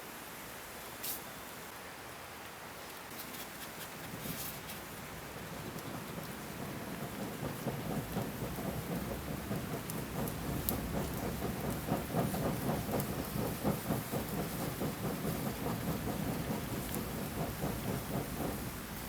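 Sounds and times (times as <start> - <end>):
rain pattering: 3.9 - 19.0.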